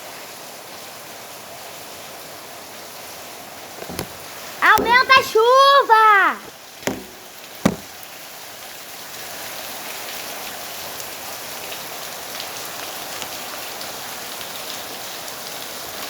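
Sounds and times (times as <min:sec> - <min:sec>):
sharp knock: 0:03.8 - 0:05.5, 0:06.4 - 0:08.0.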